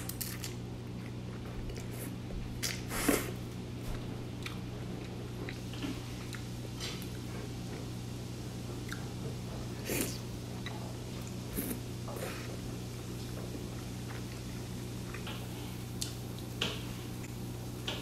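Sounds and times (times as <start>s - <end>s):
chewing pasta: 0.0s - 3.4s, 4.3s - 7.9s, 9.8s - 16.5s
steady low hum: 0.0s - 18.0s.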